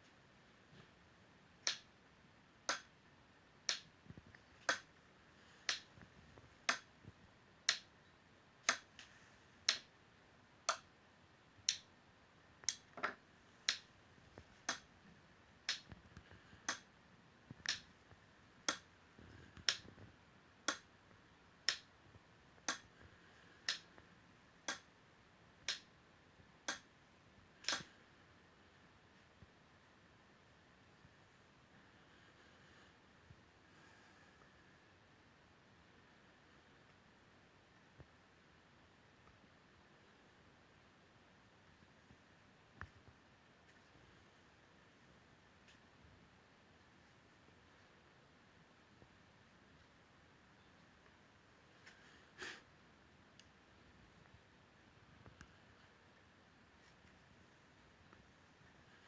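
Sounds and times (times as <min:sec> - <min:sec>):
sharp clicks: 0:27.6 - 0:28.0.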